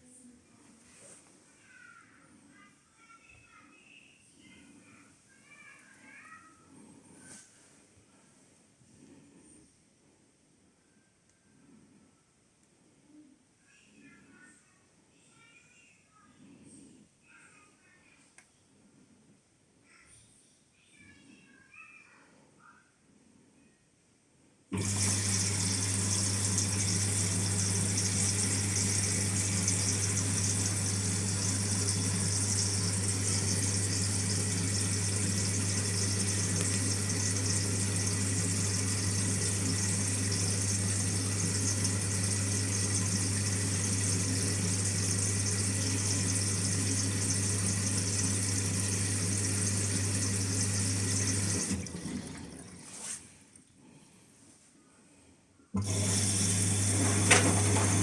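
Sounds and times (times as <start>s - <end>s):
washing machine filling with water: 24.7s - 53.3s, 55.8s - 58.0s.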